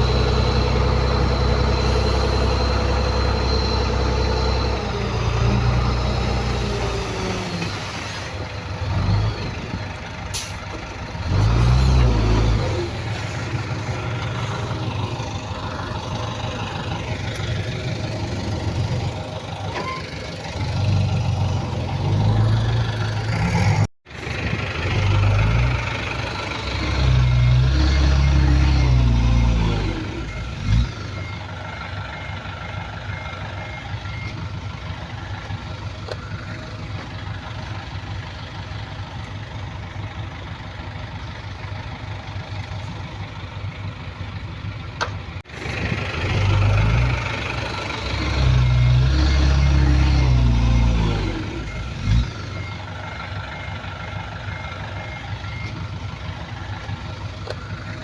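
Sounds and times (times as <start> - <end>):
reversing alarm beeping: 0.0 - 7.2, 26.8 - 34.6, 48.2 - 58.0
diesel earthmoving machinery: 0.0 - 58.0.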